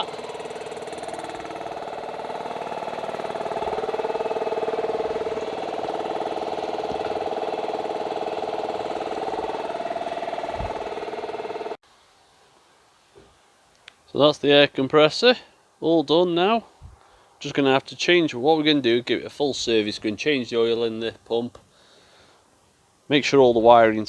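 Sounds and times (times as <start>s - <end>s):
air compressor running: 0.0s - 11.8s.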